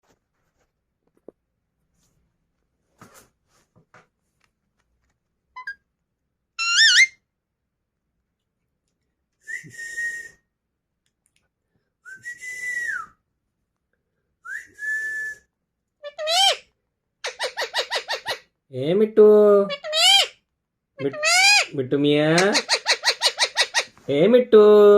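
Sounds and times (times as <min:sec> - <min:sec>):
parrot whistling: 0:06.6 - 0:07.2.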